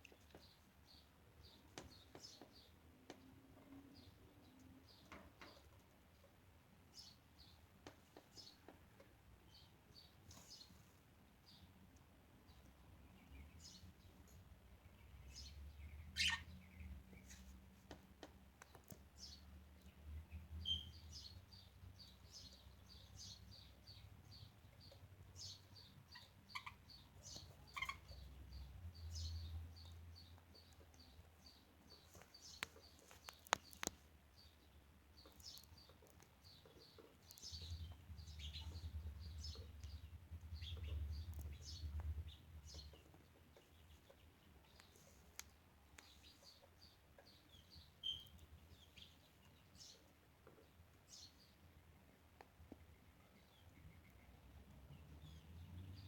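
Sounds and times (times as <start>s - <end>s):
budgerigars chirping: 15.3s - 16.9s, 20.6s - 21.3s, 24.9s - 28.4s.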